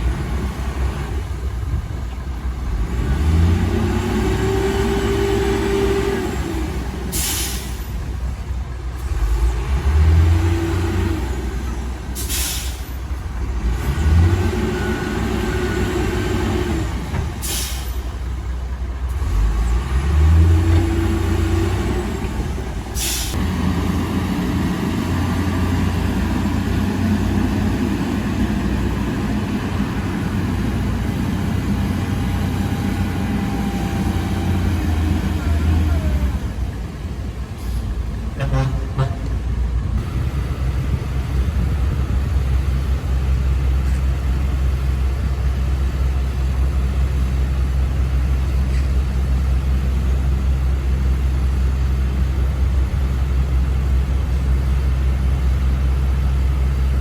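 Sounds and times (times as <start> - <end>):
heavy diesel engine revving: 0.0 - 57.0
sharp hiss of released air: 7.1 - 8.0, 12.2 - 13.0, 17.4 - 18.0, 23.0 - 23.4.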